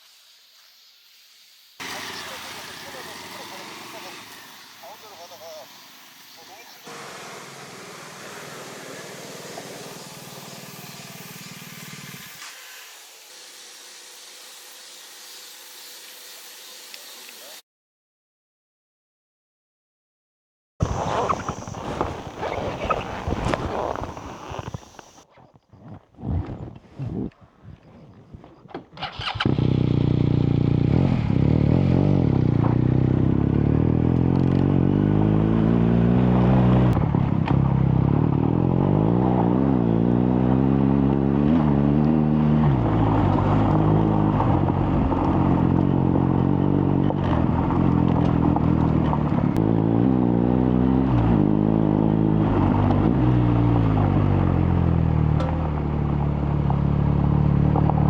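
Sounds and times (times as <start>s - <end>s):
motorcycle engine revving: 1.8s - 12.4s, 20.8s - 25.2s, 29.0s - 58.0s.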